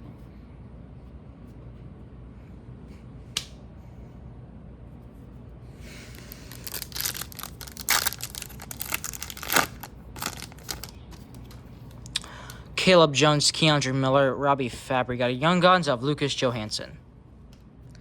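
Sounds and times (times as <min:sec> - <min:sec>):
cards rustling: 0:05.9 - 0:12.6
wrapper tearing and crinkling: 0:06.1 - 0:12.0.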